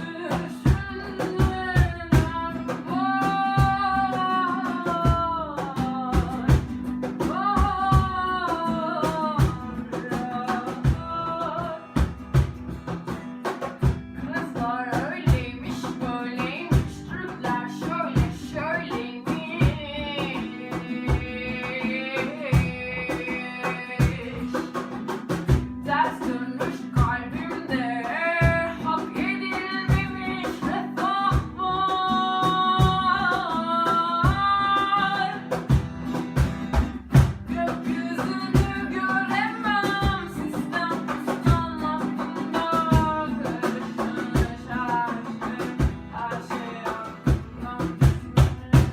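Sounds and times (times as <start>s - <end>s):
person singing: 0.0s - 11.9s, 14.2s - 24.7s, 25.9s - 35.6s, 37.5s - 48.9s
guitar: 0.0s - 48.9s
drum kit beat: 24.1s - 25.9s.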